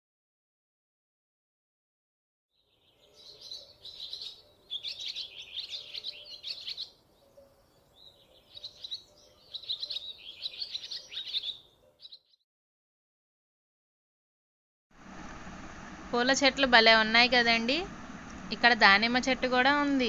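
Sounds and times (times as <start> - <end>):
songbird twittering: 2.6 - 12.4.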